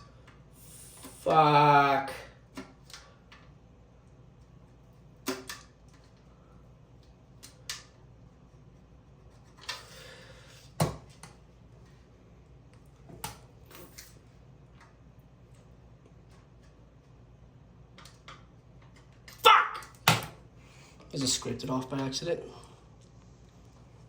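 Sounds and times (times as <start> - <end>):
clicks and knocks handling fan: 5.2 - 6.2.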